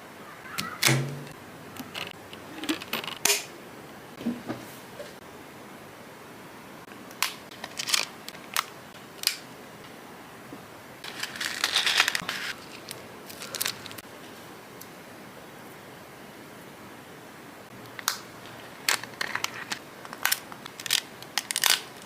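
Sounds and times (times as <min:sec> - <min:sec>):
packaging crinkling: 0:07.5 - 0:09.4, 0:11.0 - 0:14.0, 0:18.0 - 0:22.0.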